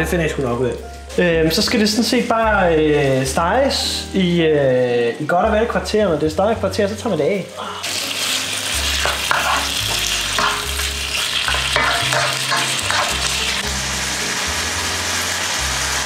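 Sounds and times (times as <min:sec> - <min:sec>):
background music bass line: 0:00.0 - 0:07.3, 0:08.4 - 0:16.0
chicken sizzling in butter: 0:07.0 - 0:16.0
spatula scraping wok: 0:07.9 - 0:16.0.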